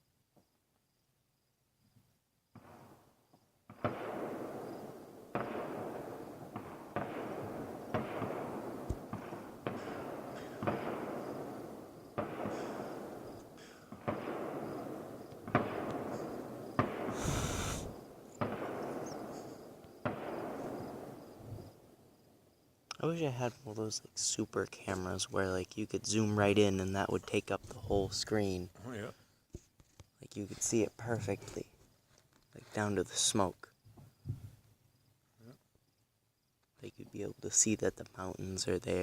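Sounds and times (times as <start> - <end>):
distant fireworks booming: 2.5 - 22.3.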